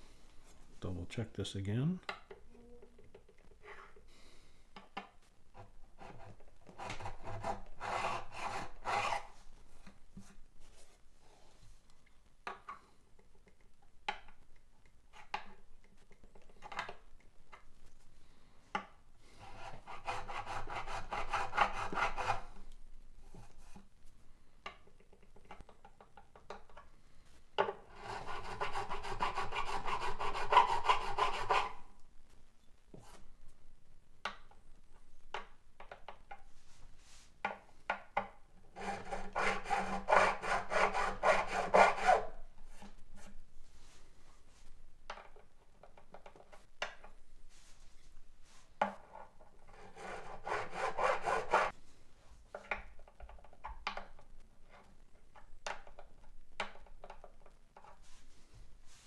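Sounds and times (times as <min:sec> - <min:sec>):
file scraping guitar fret: 0:38.8 - 0:42.3.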